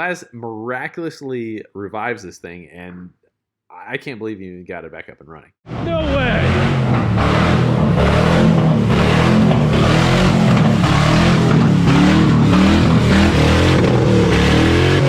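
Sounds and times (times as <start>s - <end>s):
car engine running loud: 5.7s - 15.0s.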